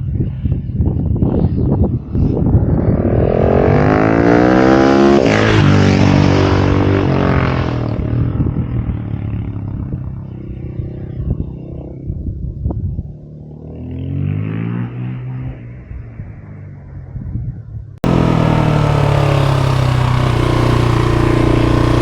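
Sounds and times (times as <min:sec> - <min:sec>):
motorcycle engine accelerating: 0:01.2 - 0:10.9, 0:18.0 - 0:22.0.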